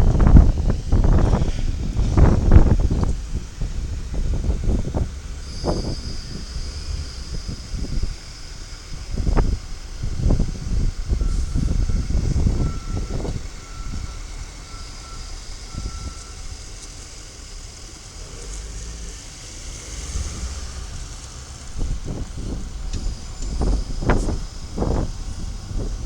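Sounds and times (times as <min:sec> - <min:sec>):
garbage truck engine rumbling: 0:00.0 - 0:26.0
wind gusting on microphone: 0:00.0 - 0:26.0
back-up alarm beeping: 0:11.2 - 0:16.5.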